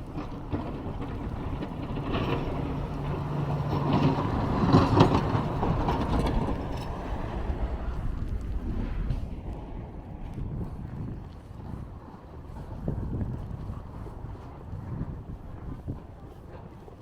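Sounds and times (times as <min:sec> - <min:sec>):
vehicle passing: 0:01.4 - 0:10.8.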